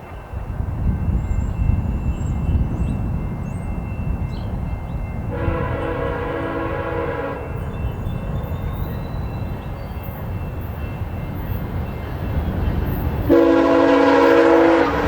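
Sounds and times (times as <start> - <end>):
train passing with rumble: 0.0 - 15.0
locomotive horn blast: 5.3 - 7.6, 13.3 - 15.0.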